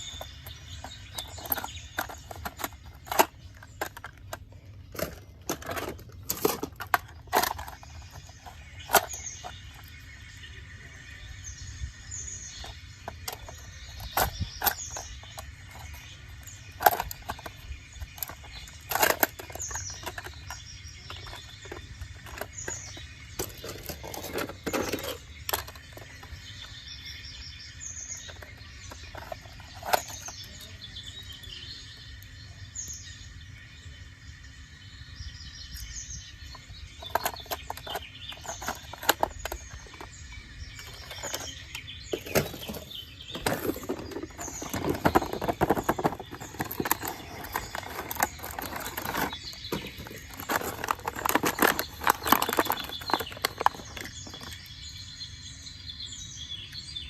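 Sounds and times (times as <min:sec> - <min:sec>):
sharp clicks and knocks: 0:00.0 - 0:09.9, 0:16.7 - 0:26.4, 0:37.0 - 0:40.2, 0:40.8 - 0:54.7
small birds chirping: 0:00.0 - 0:57.0.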